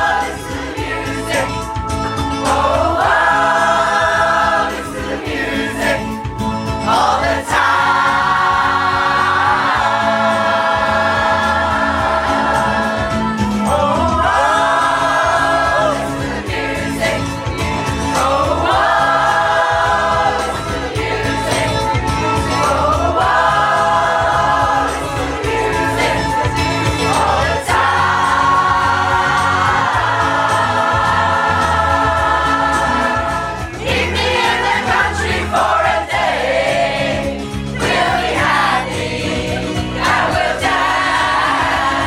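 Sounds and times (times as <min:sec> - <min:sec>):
backing track with steady beat: 0:00.0 - 0:42.0
choir singing: 0:00.0 - 0:42.0.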